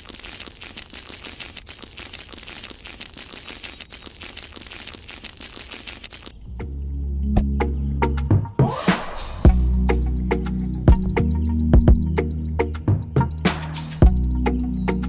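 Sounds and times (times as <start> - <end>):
toy wheels crunching on sand: 0.0 - 6.3
music: 6.5 - 15.0.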